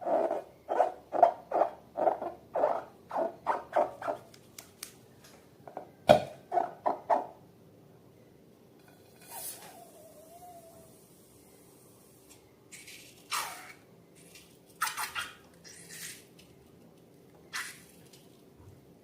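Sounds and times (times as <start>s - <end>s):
sliding squeal with hiss: 9.2s - 10.9s.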